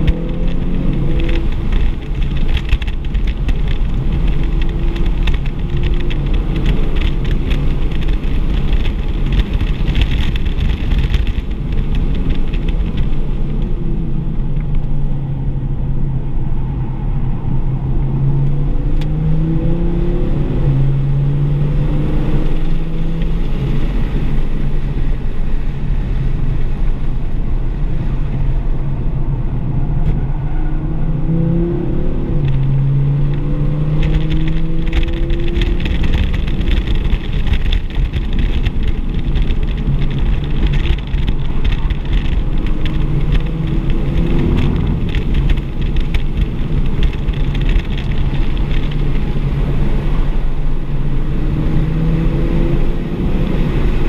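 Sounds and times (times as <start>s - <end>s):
car engine accelerating: 0.0s - 25.4s, 28.8s - 54.0s
rough rushing noise: 29.9s - 54.0s.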